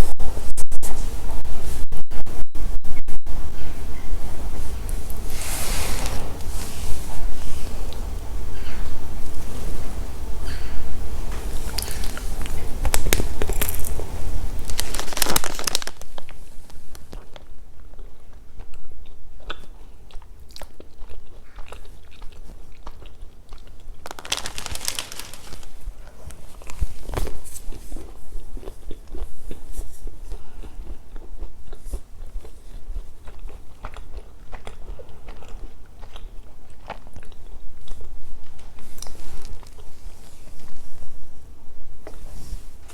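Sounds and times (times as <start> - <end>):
steady low hum: 0.0 - 19.4
chewing crunchy chocolate snacks: 11.3 - 39.9.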